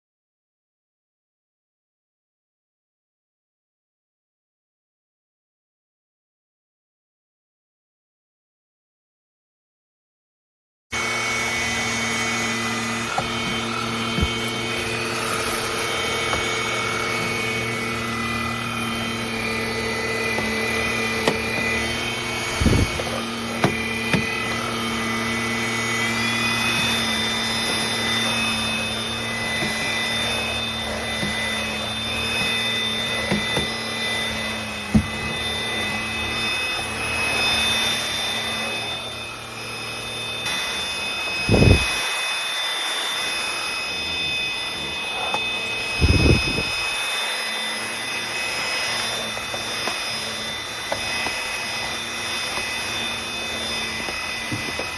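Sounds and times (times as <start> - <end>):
stick vacuum cleaner motor whine: 11.0 - 54.9.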